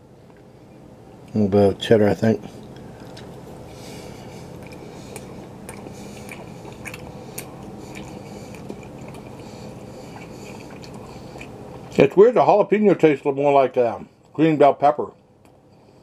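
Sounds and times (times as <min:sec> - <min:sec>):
steady low hum: 0:00.0 - 0:16.0
person chewing: 0:02.5 - 0:12.0
wet mouth clicks: 0:04.6 - 0:09.4, 0:10.1 - 0:11.9.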